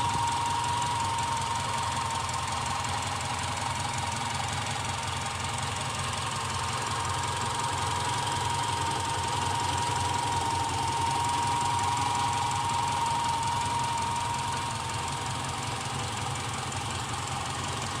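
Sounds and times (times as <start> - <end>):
car engine rumble: 0.0 - 18.0.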